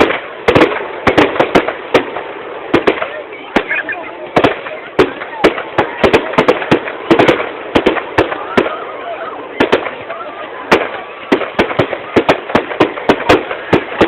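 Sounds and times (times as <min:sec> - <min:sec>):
crowd voices: 0:00.0 - 0:14.0
fireworks bangs and pops: 0:00.0 - 0:14.0.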